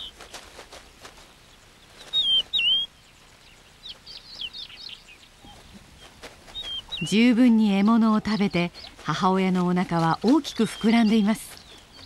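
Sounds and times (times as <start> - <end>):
quick down-sweeping bird chirps: 2.0 - 2.9
whistled bird notes: 2.0 - 9.0.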